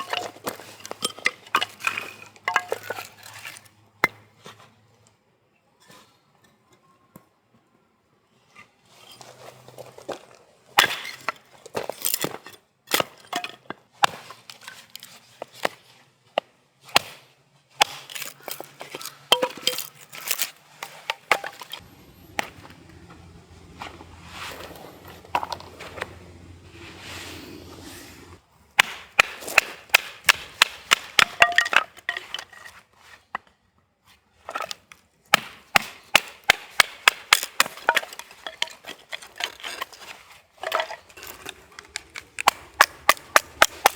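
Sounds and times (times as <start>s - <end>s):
sharp cracks and knocks: 28.8s - 32.2s, 35.3s - 39.9s, 40.6s - 43.9s.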